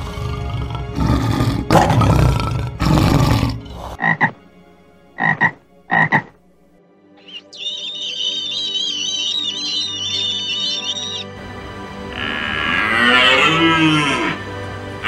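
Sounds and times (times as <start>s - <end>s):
lion roaring: 0.0s - 4.0s, 12.1s - 14.4s
frog croaking: 4.0s - 4.4s, 5.2s - 6.4s, 7.2s - 11.2s, 12.2s - 14.4s.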